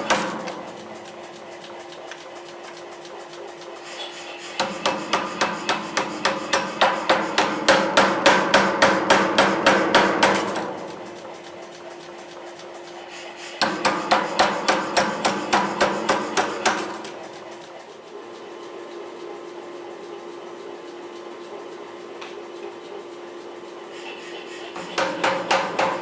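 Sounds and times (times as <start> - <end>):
steady hum: 0.0 - 26.0
hammer striking steel on anvil: 4.6 - 10.7, 24.8 - 26.0.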